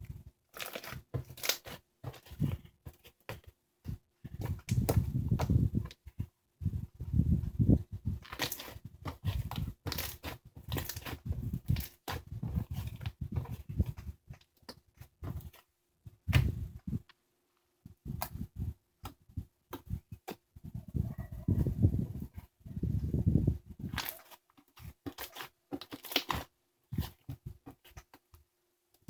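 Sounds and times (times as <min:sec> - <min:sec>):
slime squished by hand: 0:08.2 - 0:14.0, 0:23.9 - 0:28.2.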